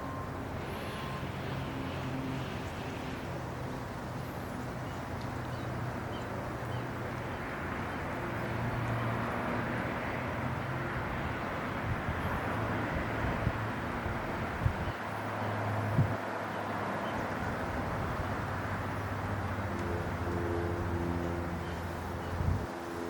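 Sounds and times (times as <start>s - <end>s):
engine-like drone: 0.0s - 23.0s
outdoor background hum: 0.0s - 23.0s.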